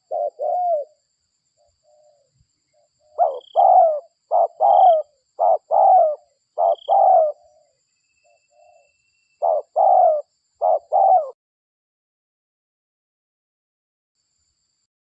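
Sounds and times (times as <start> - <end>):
dove cooing: 0.0 - 1.0, 1.6 - 2.4, 3.0 - 7.8, 8.5 - 11.4.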